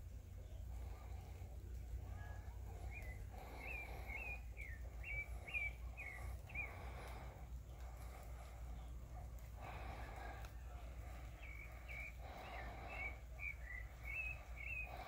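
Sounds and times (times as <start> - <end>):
low steady rumble: 0.0 - 15.0
bird high chirps: 2.2 - 6.9, 11.2 - 15.0.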